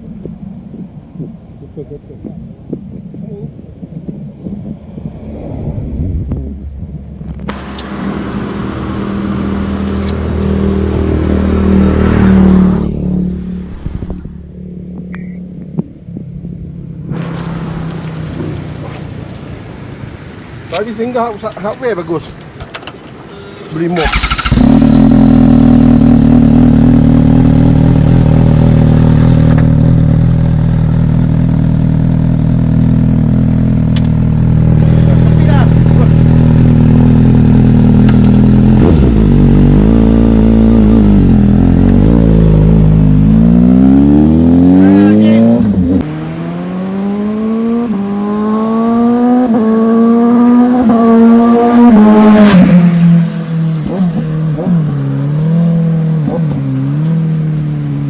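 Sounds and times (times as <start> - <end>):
motorcycle engine running steadily: 23.6 - 43.4.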